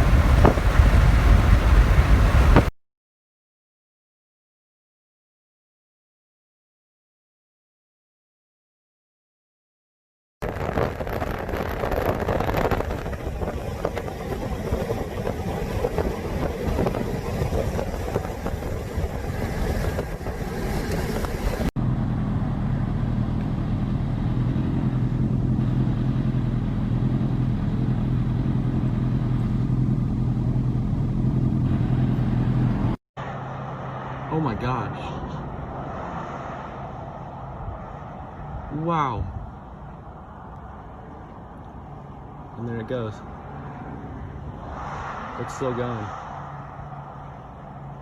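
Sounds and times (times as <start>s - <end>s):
rough rushing noise: 0.0s - 2.7s, 10.4s - 21.7s, 33.2s - 48.0s.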